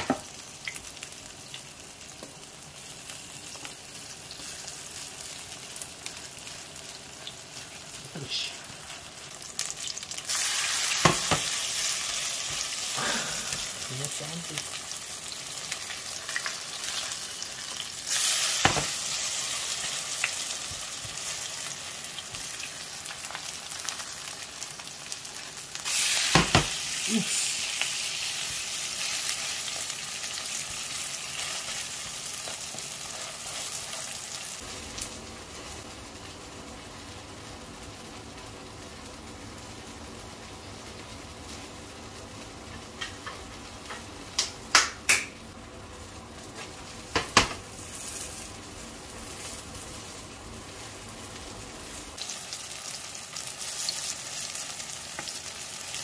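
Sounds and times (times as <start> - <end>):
pancakes sizzling in hot oil: 0.0 - 44.8, 45.4 - 56.0.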